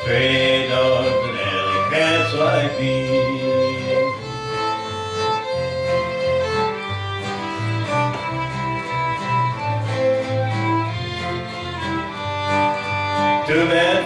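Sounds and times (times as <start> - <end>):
person singing: 0.0 - 4.3, 13.3 - 14.0
fiddle melody: 0.0 - 14.0
guitar accompaniment: 0.0 - 14.0.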